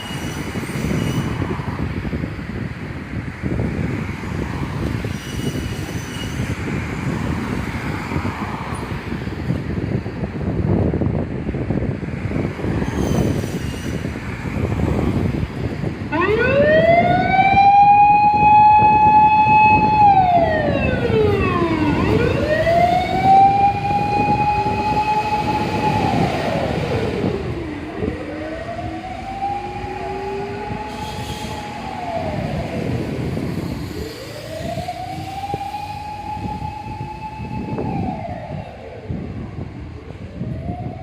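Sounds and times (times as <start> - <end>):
fire truck siren wailing: 15.9 - 41.0.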